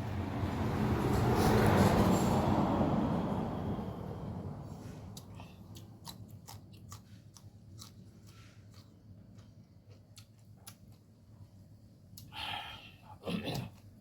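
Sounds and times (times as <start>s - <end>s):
chewing and crunching noodles: 4.7s - 11.5s.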